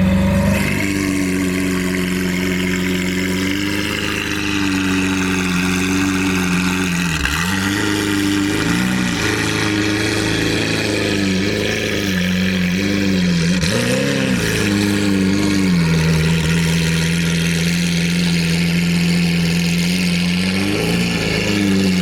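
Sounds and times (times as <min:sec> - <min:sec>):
car engine idling loudly: 0:00.0 - 0:22.0.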